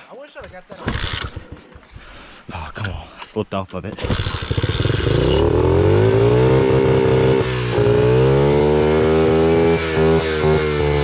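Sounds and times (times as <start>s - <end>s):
motorbike engine starting and revving: 0.8s - 1.8s, 3.9s - 11.0s.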